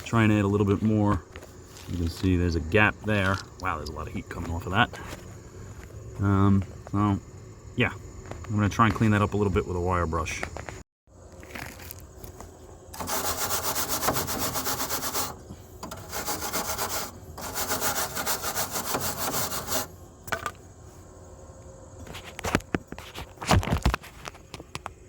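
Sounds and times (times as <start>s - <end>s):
wire brush scrubbing metal: 13.0s - 20.0s.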